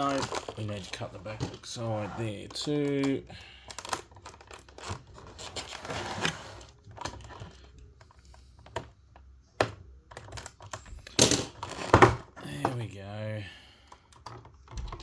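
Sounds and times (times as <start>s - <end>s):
packaging rustling and crinkling: 0.0s - 7.8s.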